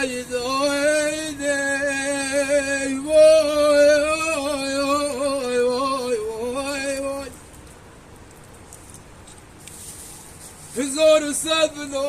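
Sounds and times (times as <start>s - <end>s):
person singing unaccompanied: 0.0s - 7.4s, 10.7s - 12.0s
faint steady hiss: 0.0s - 12.0s.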